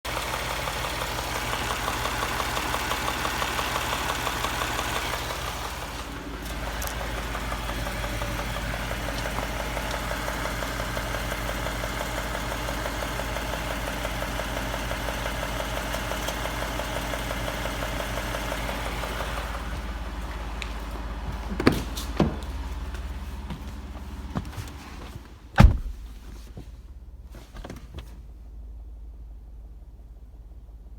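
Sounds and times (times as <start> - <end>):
rhythmic engine ticking: 0.1 - 21.6
car engine running: 0.1 - 30.9
sharp clunks: 21.3 - 22.7, 23.5 - 26.7.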